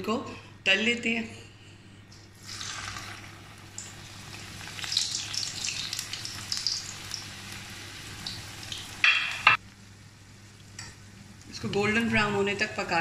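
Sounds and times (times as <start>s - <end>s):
spring rolls sizzling in hot oil: 2.4s - 9.6s.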